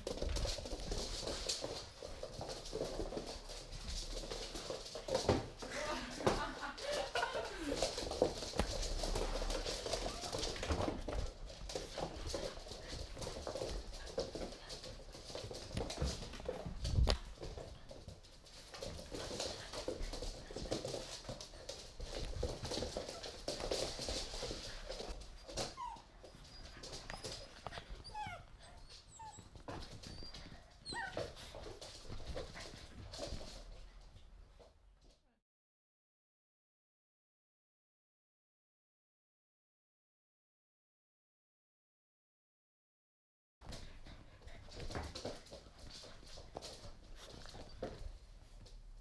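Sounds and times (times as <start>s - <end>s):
puppy sounds: 0.0s - 34.3s
paws clattering on hard floor: 0.0s - 35.2s, 43.6s - 49.0s
puppies whining: 25.3s - 31.3s.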